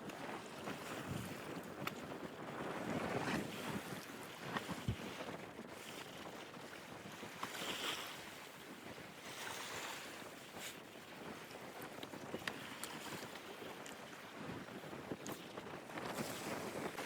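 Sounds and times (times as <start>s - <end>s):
wind and sea hiss: 0.0s - 17.0s.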